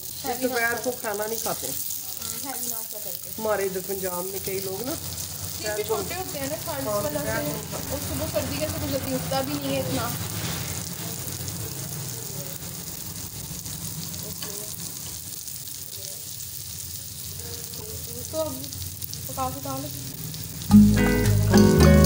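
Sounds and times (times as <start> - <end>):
paratha sizzling on a hot pan: 0.0 - 21.6
background music: 20.7 - 22.0.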